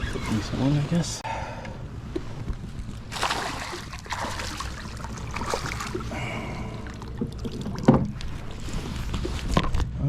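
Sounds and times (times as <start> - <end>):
water splashing and trickling: 2.9 - 9.6.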